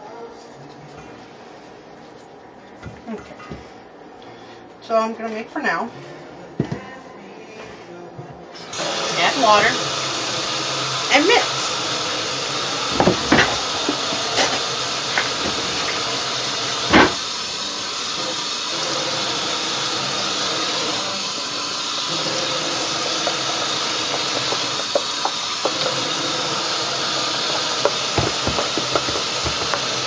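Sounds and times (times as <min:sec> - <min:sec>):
utensil knocking against bowl: 0:27.8 - 0:29.9.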